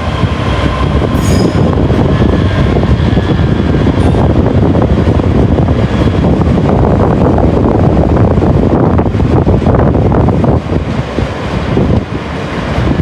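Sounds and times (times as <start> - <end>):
train rumbling: 0.0 - 13.0
high wheel squeal: 1.0 - 1.9.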